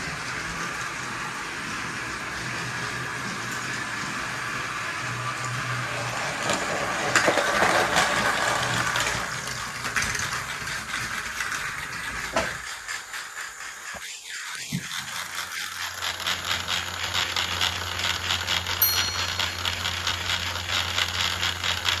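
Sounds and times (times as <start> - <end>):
toy train rattling on plastic track: 0.0 - 22.0.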